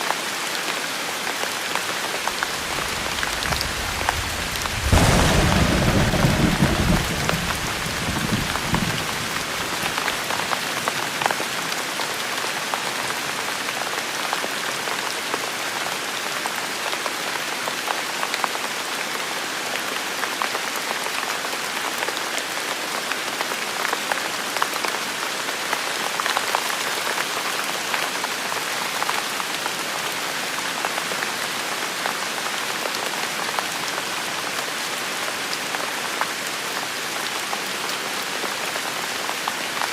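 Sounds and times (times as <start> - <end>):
steady rain: 0.0 - 39.9
low thunder rumble: 2.5 - 9.8.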